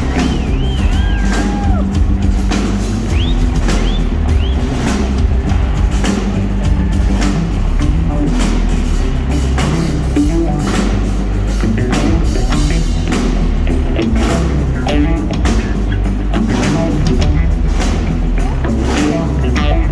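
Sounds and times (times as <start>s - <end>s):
drum kit hits: 0.0s - 19.9s
live rock band playing: 0.0s - 19.9s.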